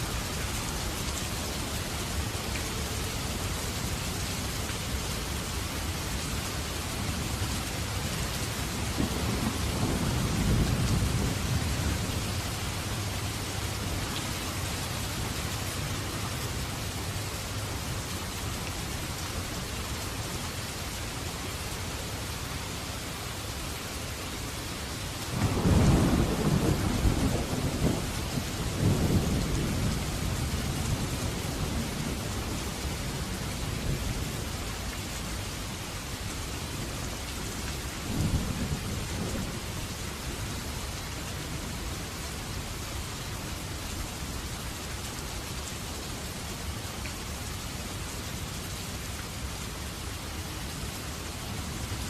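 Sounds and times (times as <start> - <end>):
heavy rain: 0.0 - 52.0
thunder rumbling: 8.8 - 12.7, 25.3 - 32.8
loud thunderclap: 25.4 - 30.0.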